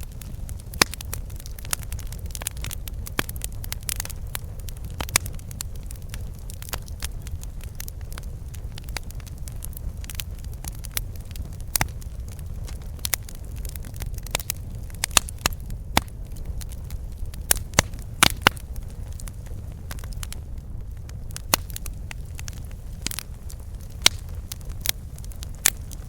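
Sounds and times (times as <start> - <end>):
campfire crackling: 0.0 - 26.0.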